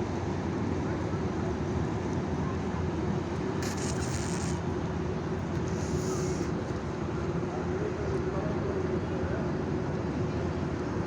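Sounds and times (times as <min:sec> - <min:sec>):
brief hiss: 0:03.6 - 0:04.6, 0:05.6 - 0:06.6.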